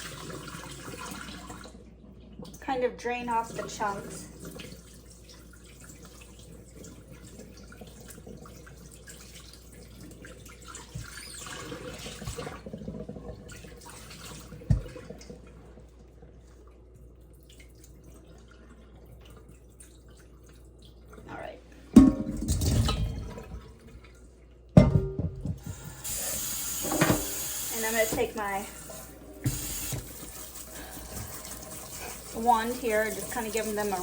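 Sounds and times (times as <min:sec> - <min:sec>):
water dripping in a sink: 0:00.0 - 0:26.1.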